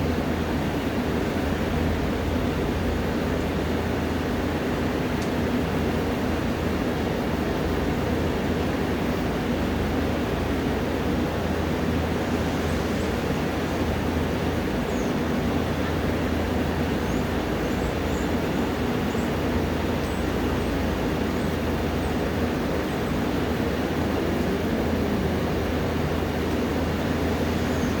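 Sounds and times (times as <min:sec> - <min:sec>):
low hum: 0:20.3 - 0:28.0.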